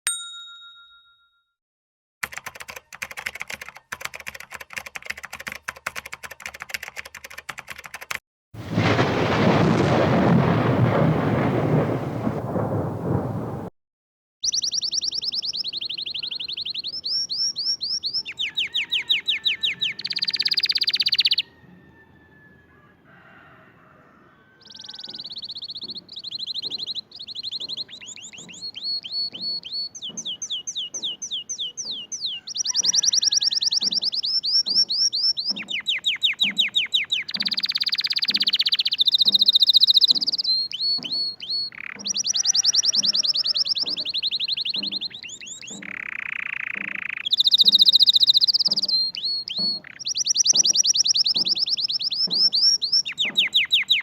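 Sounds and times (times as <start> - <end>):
songbird singing in trills: 14.4 - 21.6, 24.6 - 54.0.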